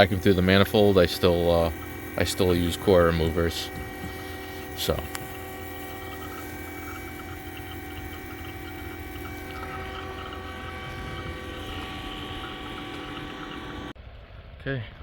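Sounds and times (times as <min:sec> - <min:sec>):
vacuum pump humming: 0:00.0 - 0:14.0.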